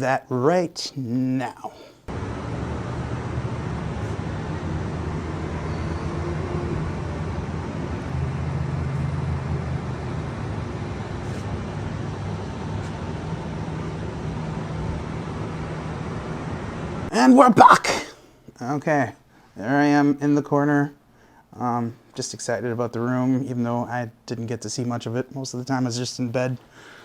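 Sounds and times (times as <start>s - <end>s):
hiss of passing traffic: 2.1s - 17.1s
low rumble of vehicle engines: 2.1s - 17.1s.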